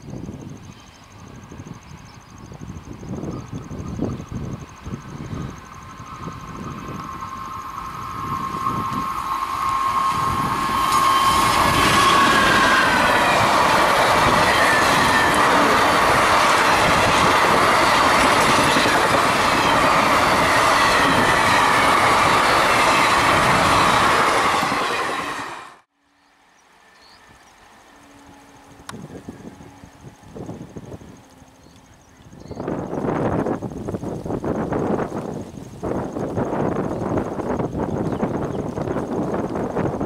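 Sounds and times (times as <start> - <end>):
locomotive whine: 0.3 - 40.0
train wheels clattering on rails: 5.8 - 25.8.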